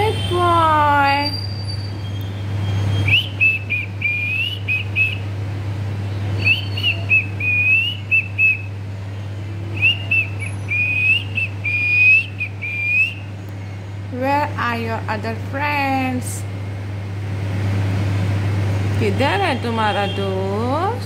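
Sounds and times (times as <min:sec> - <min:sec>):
steady low hum: 0:00.0 - 0:21.0
parrot whistling a tune: 0:01.2 - 0:05.2, 0:06.4 - 0:08.7, 0:09.7 - 0:13.2.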